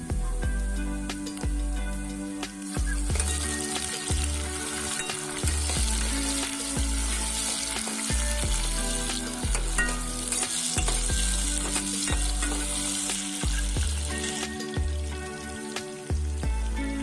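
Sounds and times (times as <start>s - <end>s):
background music with bass line: 0.0s - 17.0s
vegetables sizzling in hot oil: 0.8s - 17.0s
ladle scraping a pan: 3.1s - 14.8s.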